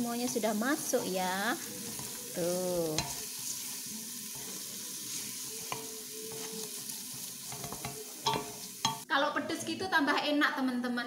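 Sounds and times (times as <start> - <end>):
paste sizzling in oil: 0.0 - 9.1.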